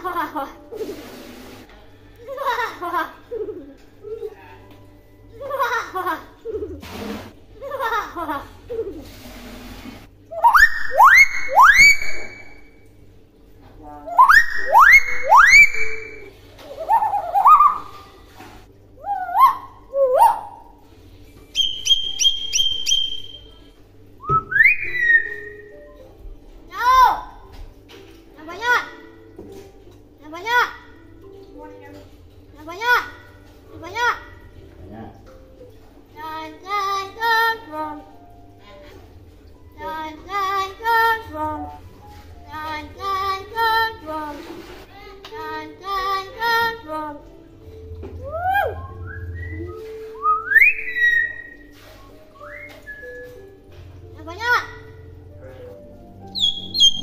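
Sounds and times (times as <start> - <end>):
myna whistling: 10.4 - 12.6, 14.2 - 16.3, 21.5 - 25.7, 48.4 - 51.8, 52.4 - 53.4, 56.3 - 57.0.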